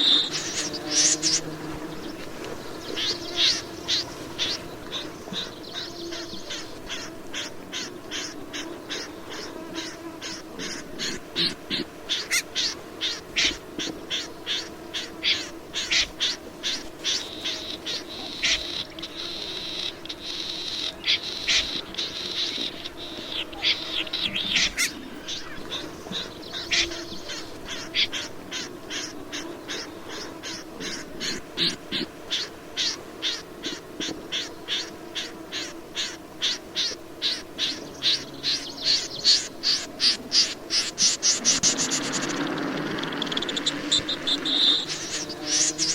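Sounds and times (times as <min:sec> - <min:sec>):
bird calling sharp high notes: 0:41.0 - 0:45.9.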